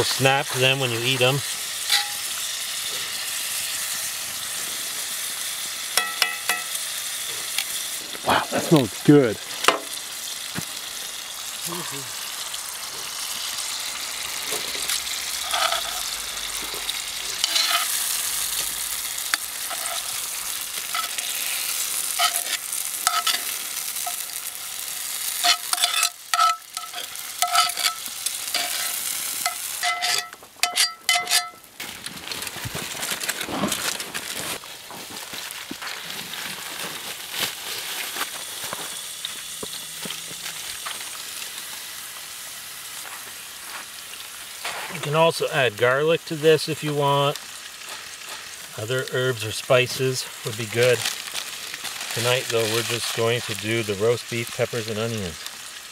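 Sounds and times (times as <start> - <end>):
food sizzling in oil: 0.0 - 55.9
metal utensil scraping pan: 1.8 - 2.4, 14.5 - 16.2, 16.9 - 18.1, 19.2 - 24.5, 25.2 - 31.6
utensil clinking against pan: 28.6 - 31.6.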